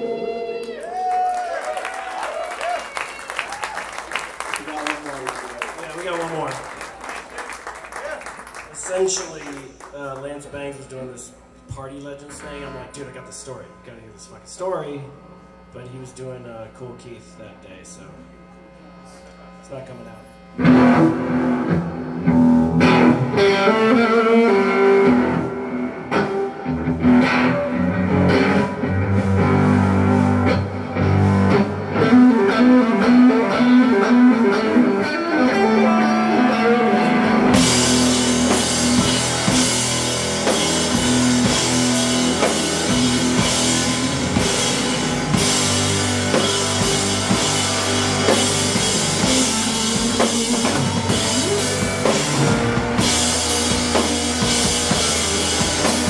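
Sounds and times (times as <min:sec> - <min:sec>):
electric guitar: 0:00.0 - 0:10.2, 0:18.1 - 0:56.0
drum kit and cymbals: 0:37.1 - 0:56.0.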